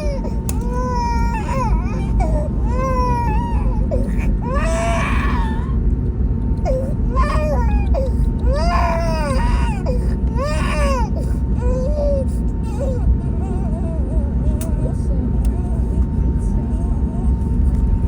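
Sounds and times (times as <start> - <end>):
baby crying: 0.0 - 5.8, 6.6 - 14.2
airliner cabin rumble: 0.0 - 18.0.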